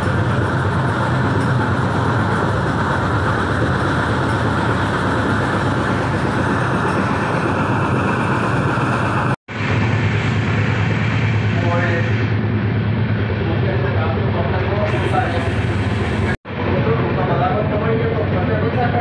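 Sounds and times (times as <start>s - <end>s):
rush of air: 0.0s - 13.4s
train wheels rumbling on rail: 0.0s - 19.0s.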